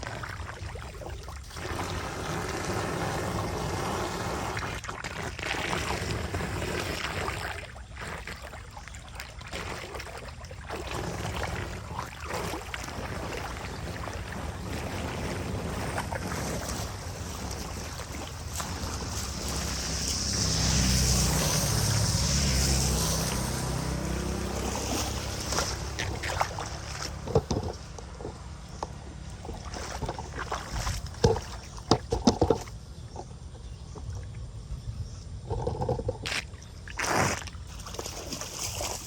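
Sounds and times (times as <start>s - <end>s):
steady hiss of water or wind: 13.0s - 27.7s
engine running: 13.4s - 34.6s
sharp knocks and clatters: 27.2s - 29.0s.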